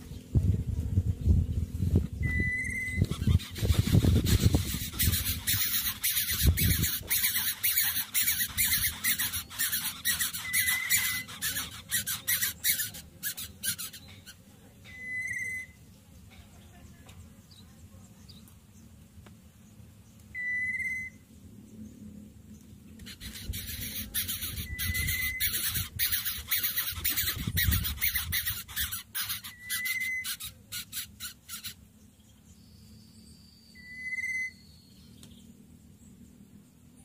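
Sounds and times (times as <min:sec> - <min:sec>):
bird whistled note: 0:02.2 - 0:03.1, 0:10.4 - 0:11.2, 0:14.9 - 0:15.8, 0:20.4 - 0:21.2, 0:24.6 - 0:25.5, 0:29.5 - 0:30.4, 0:33.8 - 0:34.9.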